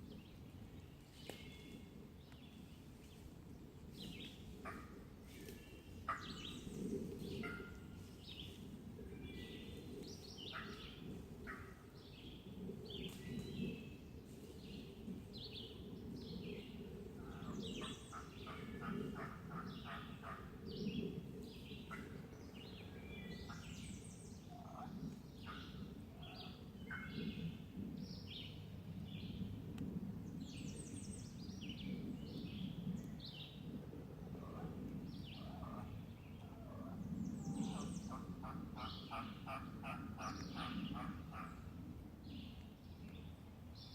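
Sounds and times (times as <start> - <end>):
songbirds chirping: 0.0 - 43.9
rapid turkey calls: 17.3 - 20.5, 37.6 - 41.6.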